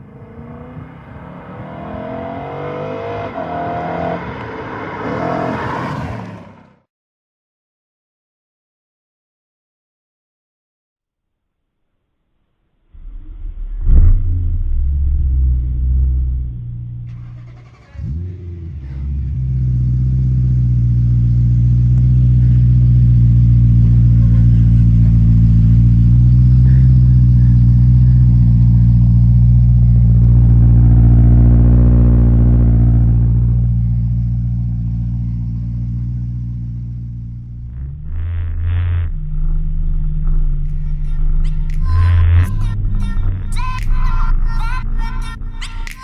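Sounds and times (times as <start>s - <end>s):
car engine idling: 13.2s - 46.0s.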